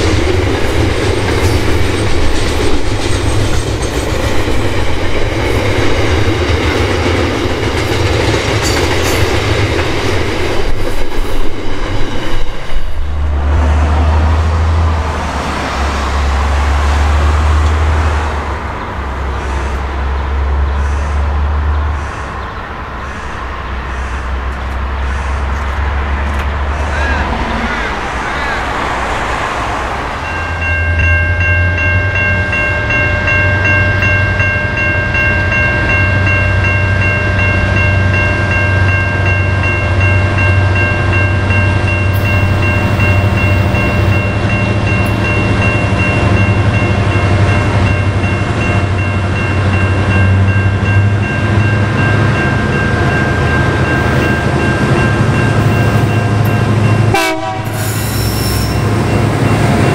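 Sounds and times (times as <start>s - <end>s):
low diesel engine drone: 13.2s - 57.6s
steady high tones: 22.6s - 57.1s
short rising squeal: 57.8s - 59.0s.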